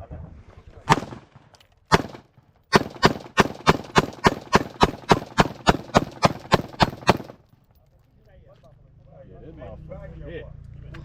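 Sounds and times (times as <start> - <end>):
gunshots: 0.9 - 7.4.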